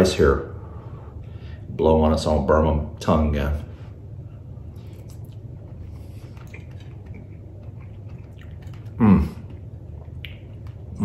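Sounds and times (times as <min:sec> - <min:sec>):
low steady hum: 0:00.0 - 0:11.0
man chewing: 0:04.6 - 0:11.0
wet mouth clicks: 0:06.4 - 0:11.0.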